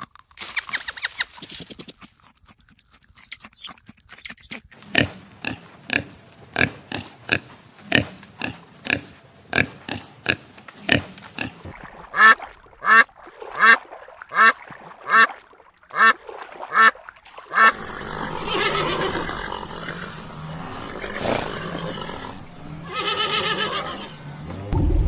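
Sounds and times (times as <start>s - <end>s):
pigs grunting and squealing: 2.7s - 13.8s, 17.5s - 24.7s.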